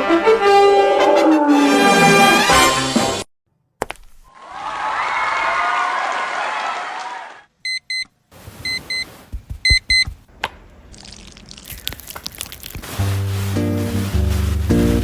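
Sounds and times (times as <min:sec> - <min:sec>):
soft thumps: 0:08.6 - 0:10.6.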